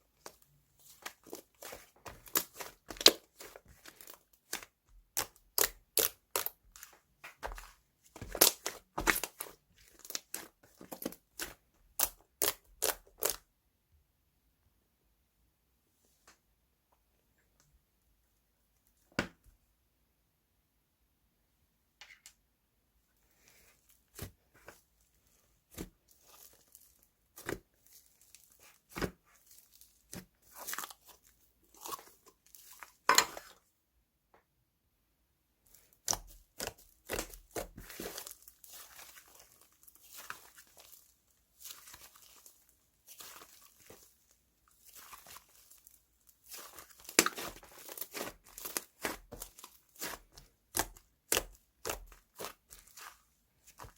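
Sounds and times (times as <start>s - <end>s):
slime crackling and popping: 0.2s - 6.9s, 8.2s - 13.4s, 35.7s - 53.9s
slime tearing: 1.0s - 6.9s, 36.0s - 44.2s, 44.8s - 53.9s.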